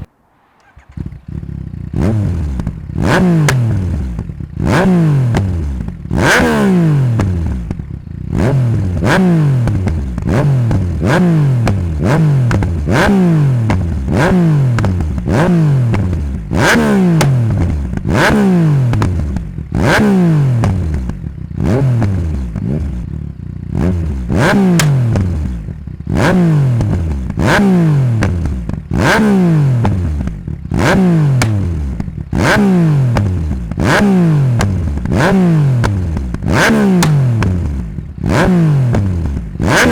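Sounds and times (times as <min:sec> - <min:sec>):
motorcycle engine revving: 0:00.0 - 0:39.9
exhaust pops and crackles: 0:02.6 - 0:04.4, 0:07.1 - 0:07.9, 0:09.0 - 0:20.0, 0:20.6 - 0:21.4, 0:24.4 - 0:25.7, 0:28.1 - 0:29.2, 0:29.8 - 0:39.9.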